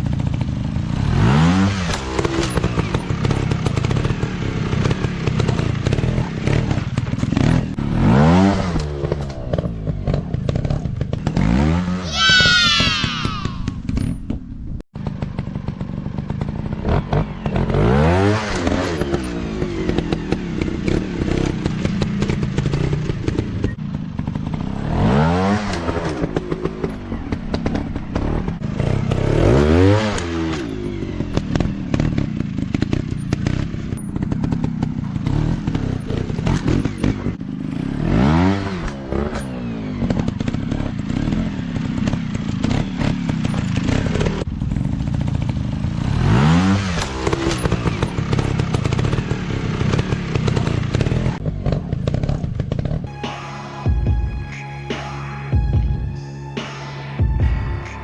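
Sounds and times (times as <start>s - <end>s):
dirt bike engines revving: 0.7s - 14.2s, 16.4s - 55.5s.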